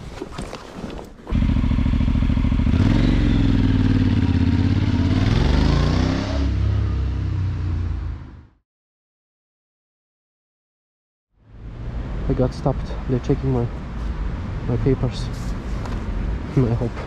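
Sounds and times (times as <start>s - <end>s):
motorcycle engine running: 1.3s - 5.5s.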